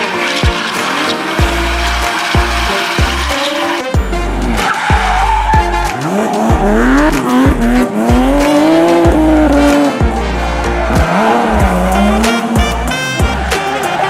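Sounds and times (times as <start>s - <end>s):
tyre squeal: 0.0s - 3.8s, 4.6s - 7.2s
car engine revving: 0.0s - 14.0s
music with thumping beat: 0.4s - 3.4s, 4.0s - 14.0s.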